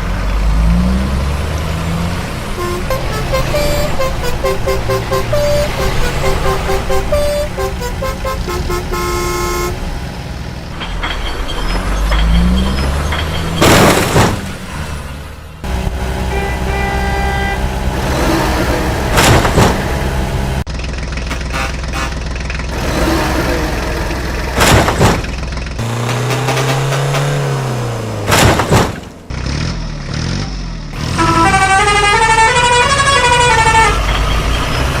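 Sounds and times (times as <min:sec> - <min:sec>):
run of high tones: 0:02.6 - 0:09.8
horn-like tones: 0:02.6 - 0:09.9, 0:16.2 - 0:19.1, 0:21.3 - 0:22.2, 0:31.1 - 0:34.2.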